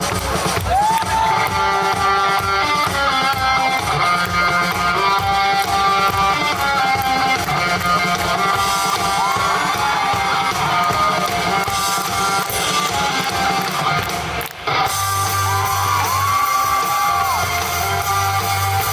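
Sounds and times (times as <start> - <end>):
rock band playing: 0.0 - 18.9.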